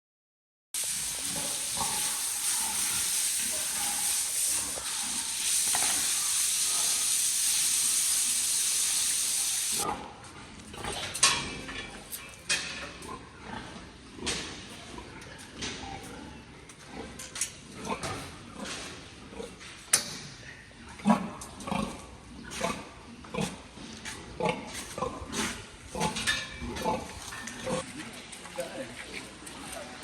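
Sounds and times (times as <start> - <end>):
loud steady hiss: 0.8 - 9.8
pigs grunting and squealing: 1.0 - 7.2, 20.6 - 27.9.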